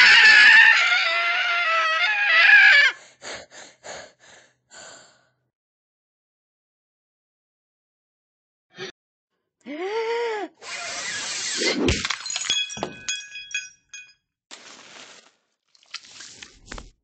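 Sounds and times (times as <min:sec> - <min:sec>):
hard objects clinking and ringing: 0:12.0 - 0:14.2.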